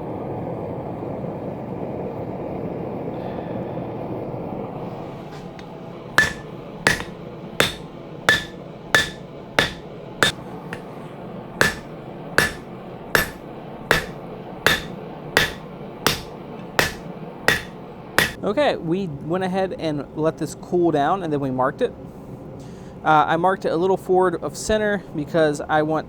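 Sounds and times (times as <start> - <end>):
hammer striking hot steel on anvil: 5.3 - 10.9, 11.6 - 18.4.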